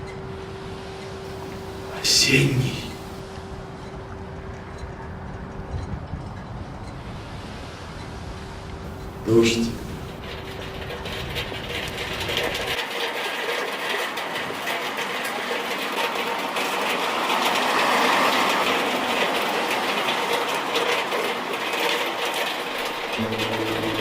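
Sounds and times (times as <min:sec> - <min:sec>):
heavy rain hiss and patter: 0:01.3 - 0:03.3, 0:07.0 - 0:24.0.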